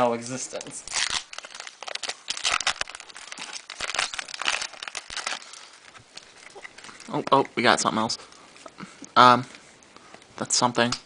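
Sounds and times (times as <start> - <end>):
foil wrapper crinkling and tearing: 0.5 - 7.3.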